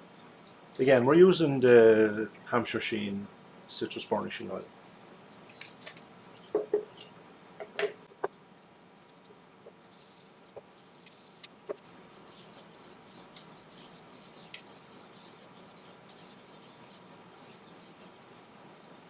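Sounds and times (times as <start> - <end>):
cloth rubbing on wood: 9.8 - 19.0.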